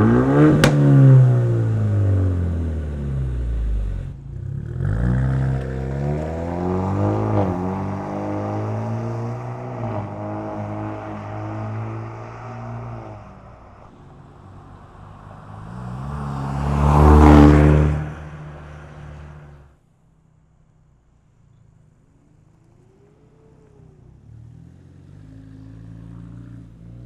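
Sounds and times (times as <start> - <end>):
car exhaust driving past: 0.0 - 19.7.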